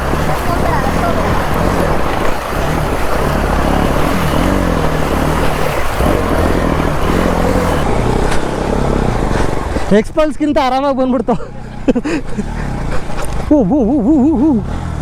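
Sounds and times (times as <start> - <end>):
rushing water splashing: 0.0 - 7.9
motorcycle engine revving: 0.0 - 9.7.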